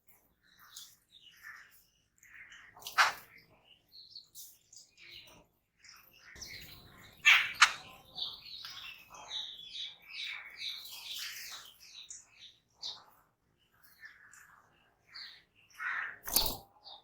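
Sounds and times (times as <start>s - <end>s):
birds chattering: 0.1s - 17.0s
loud sharp bird calls: 6.4s - 12.2s, 15.2s - 17.0s.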